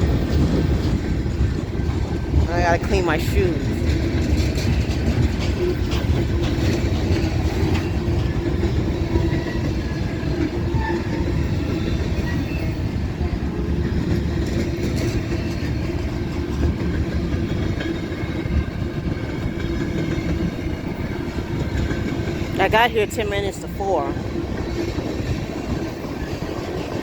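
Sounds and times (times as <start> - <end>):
freight train wheels rumbling on rail: 0.0 - 27.0
faint clickety-clack: 3.4 - 12.6, 13.9 - 22.6.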